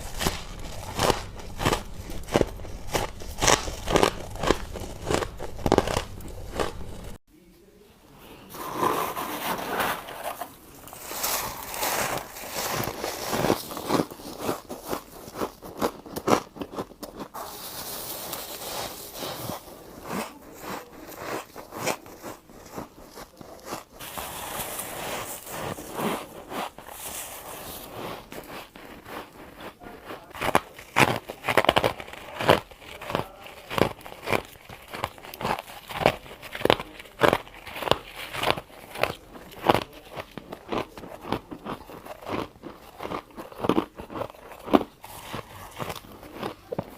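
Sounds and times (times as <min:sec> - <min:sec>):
frost being bitten and crunched: 0:00.0 - 0:07.2, 0:30.3 - 0:46.9.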